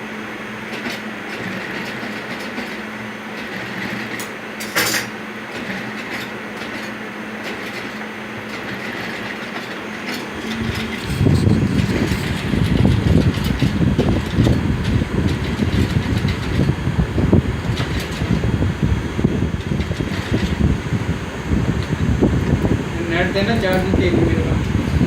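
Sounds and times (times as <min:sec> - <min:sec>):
machinery motor hum: 0:00.0 - 0:25.0
clicks and clatter: 0:03.4 - 0:16.8, 0:17.6 - 0:18.5
rough rumble: 0:08.8 - 0:25.0.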